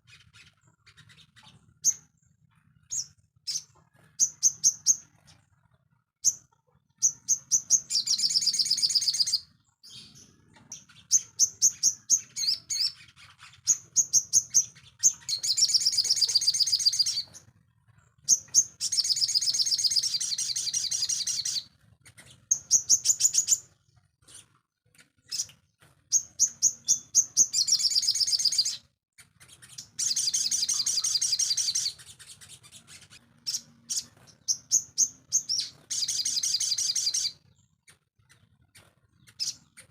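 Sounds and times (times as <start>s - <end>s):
songbird chips and buzzy trill: 29.5s - 37.4s.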